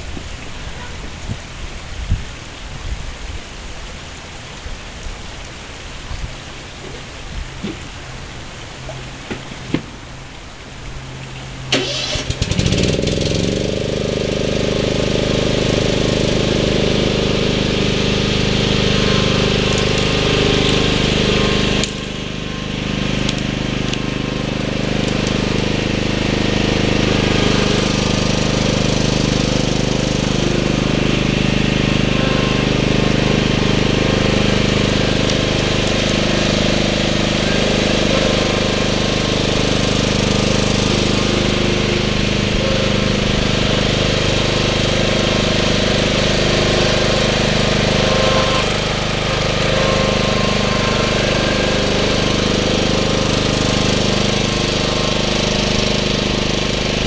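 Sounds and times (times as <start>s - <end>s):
lawn tractor engine running: 4.1s - 57.0s
starter cranking engine: 11.7s - 57.0s.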